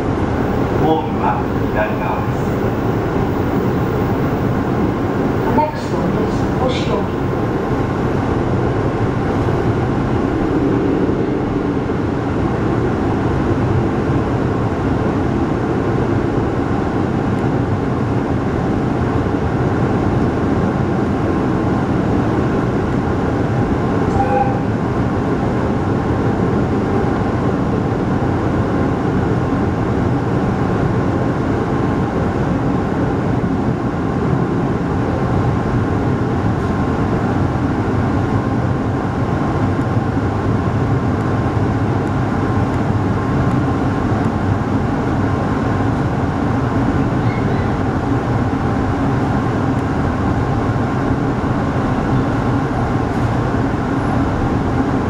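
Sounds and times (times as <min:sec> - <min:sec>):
brief tone: 0:24.1 - 0:24.7
train wheels on rail: 0:35.8 - 0:55.0.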